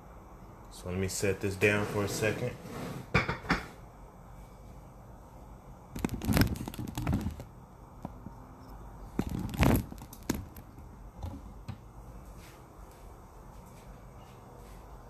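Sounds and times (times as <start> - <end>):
handling knocks and scrapes: 1.6 - 3.8.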